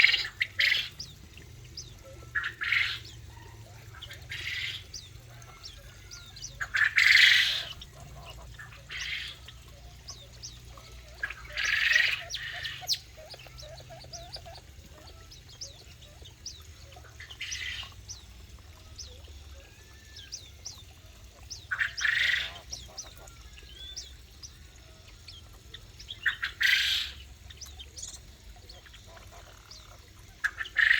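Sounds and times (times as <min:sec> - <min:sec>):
high bird chirps: 0:00.0 - 0:30.9
harsh bird squawk: 0:02.2 - 0:09.5, 0:11.2 - 0:15.3, 0:21.7 - 0:24.0, 0:26.2 - 0:27.2.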